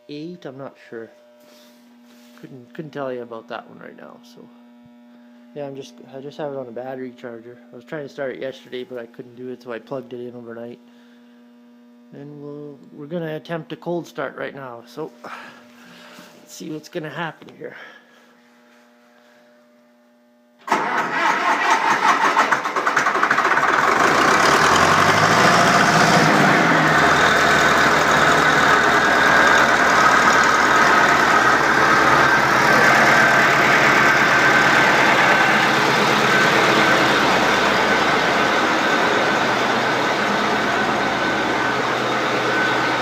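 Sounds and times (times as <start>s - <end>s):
faint steady hum: 0.0s - 20.7s
diesel engine starting and running: 20.6s - 43.0s.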